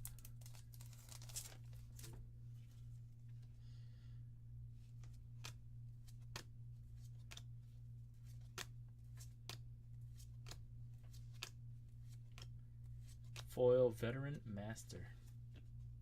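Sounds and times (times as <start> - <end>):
steady low hum: 0.0 - 16.0
cards snapping: 4.9 - 7.5, 8.2 - 13.5.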